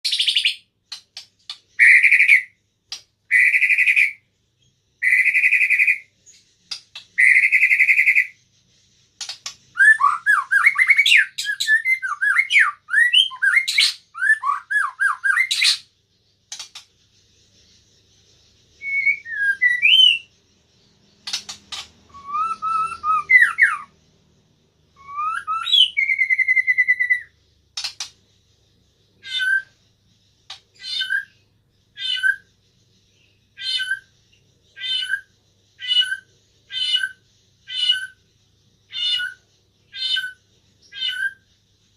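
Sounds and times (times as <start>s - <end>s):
bird singing whistled phrases: 1.7s - 2.6s, 3.3s - 4.2s, 5.0s - 6.1s, 7.2s - 8.4s, 9.7s - 15.9s, 18.8s - 20.4s, 22.1s - 23.9s, 24.9s - 27.4s, 31.9s - 32.5s.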